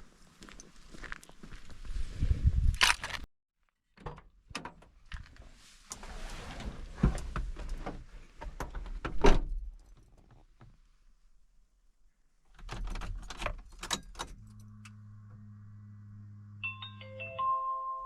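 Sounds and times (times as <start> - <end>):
car door clicks and rattles: 12.6 - 14.5.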